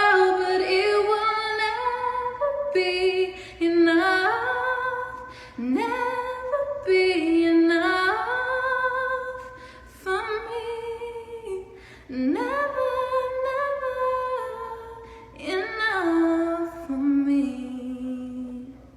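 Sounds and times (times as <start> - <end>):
woman singing unaccompanied: 0.0 - 18.9.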